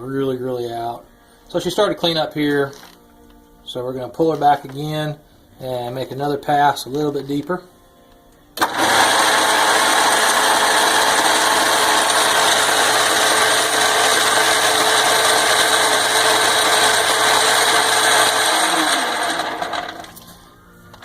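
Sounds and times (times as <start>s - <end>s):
metal lathe running: 8.6s - 20.2s.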